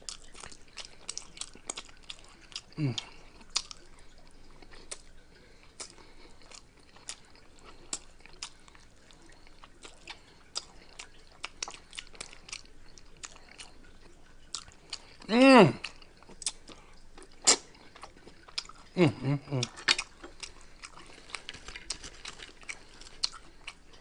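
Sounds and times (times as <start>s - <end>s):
person chewing crunchily: 0.0s - 24.0s
wet mouth clicks: 4.6s - 5.2s, 5.8s - 8.6s, 9.3s - 23.8s.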